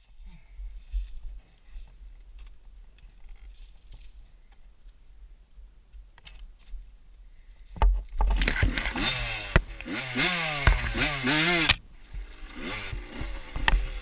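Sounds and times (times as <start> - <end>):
motorcycle engine revving: 8.4 - 14.0.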